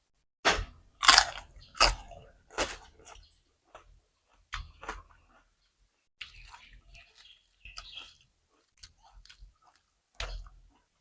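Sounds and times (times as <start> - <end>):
crisp crunching bites: 1.0 - 3.2
chewing and mouth noises: 6.2 - 11.0.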